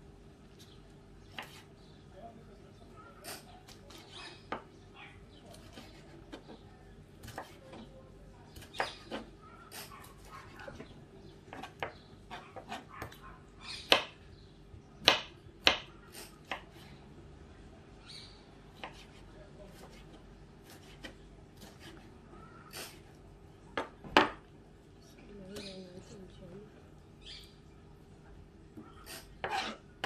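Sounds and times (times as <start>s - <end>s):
knife chopping on wooden board: 1.3s - 1.6s, 7.2s - 7.9s, 8.6s - 9.9s, 10.8s - 13.2s, 13.8s - 14.2s, 15.0s - 16.8s, 18.7s - 22.1s, 23.8s - 24.4s, 28.8s - 29.8s.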